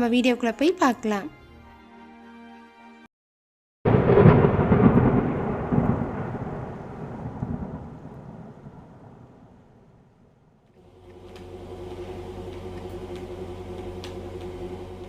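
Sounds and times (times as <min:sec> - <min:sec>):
thunderclap rolling: 0:03.9 - 0:10.6.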